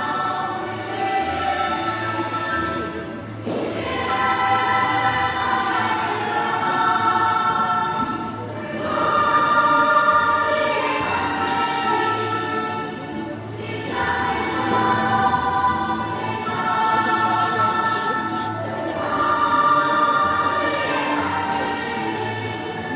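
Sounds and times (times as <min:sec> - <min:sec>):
choir singing long chords: 0:00.0 - 0:22.9.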